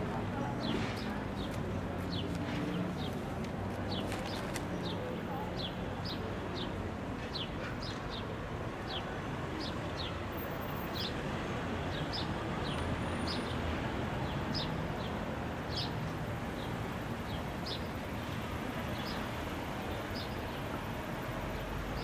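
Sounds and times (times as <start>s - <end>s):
small birds chirping: 0.1s - 9.0s, 15.7s - 20.7s.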